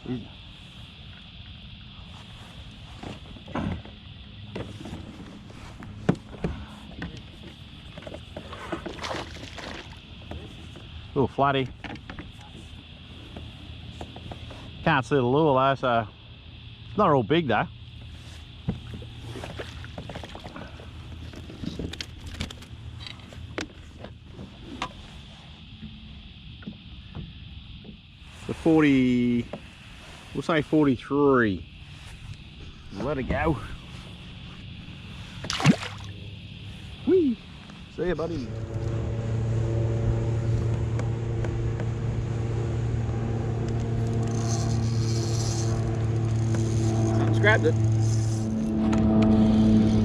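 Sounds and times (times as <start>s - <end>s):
low hum: 0.0s - 30.2s, 31.0s - 50.0s
motorboat engine drone: 0.0s - 50.0s
short squeaks: 43.8s - 50.0s.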